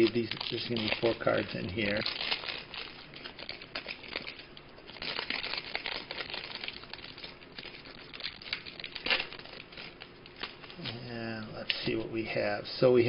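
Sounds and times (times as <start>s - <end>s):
wrapper crinkling: 0.0s - 12.0s.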